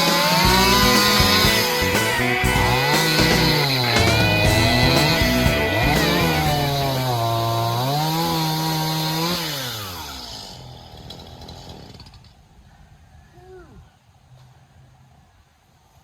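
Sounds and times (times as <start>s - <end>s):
chainsaw engine revving: 0.0s - 12.4s.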